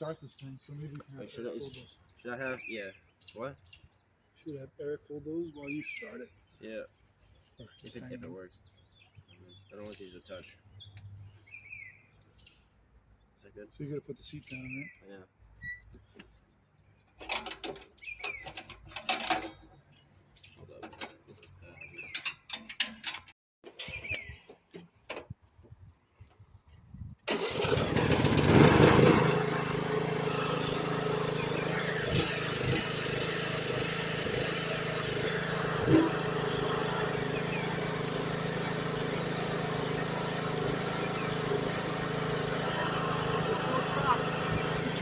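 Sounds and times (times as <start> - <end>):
tractor engine starting and idling: 17.2 - 19.6, 27.3 - 45.0.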